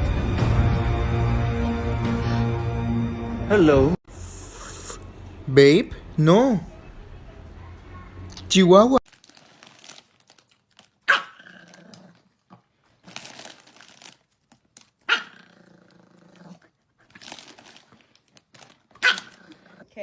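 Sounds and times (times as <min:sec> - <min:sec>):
rustling: 0:09.1 - 0:15.1, 0:15.8 - 0:19.8
small dog barking: 0:11.1 - 0:11.5, 0:15.1 - 0:15.4, 0:19.0 - 0:19.4.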